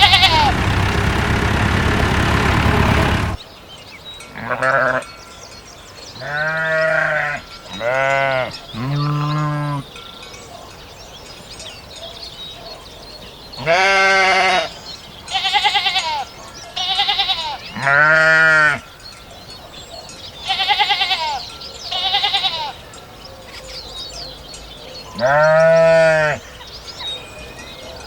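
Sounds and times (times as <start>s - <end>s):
sheep bleating: 0.0s - 0.6s, 4.4s - 5.0s, 6.2s - 9.8s, 13.6s - 14.7s, 15.3s - 18.8s, 20.4s - 22.8s, 25.2s - 26.4s
loud steady noise: 0.0s - 3.4s.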